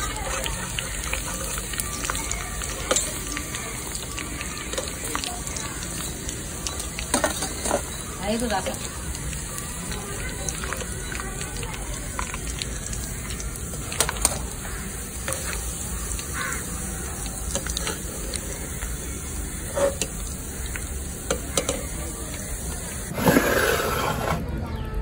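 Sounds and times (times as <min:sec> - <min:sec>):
food sizzling in hot oil: 0:00.0 - 0:24.1.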